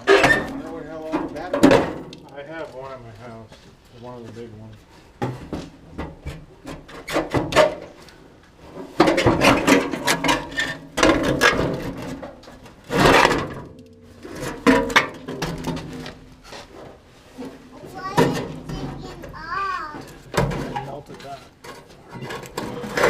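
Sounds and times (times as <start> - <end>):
hand tool scraping and rubbing: 16.0 - 20.1.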